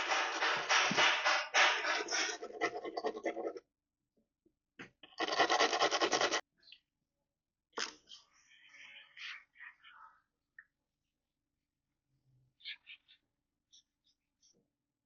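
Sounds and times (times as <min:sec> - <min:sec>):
wire brush scrubbing metal: 0:00.0 - 0:03.5.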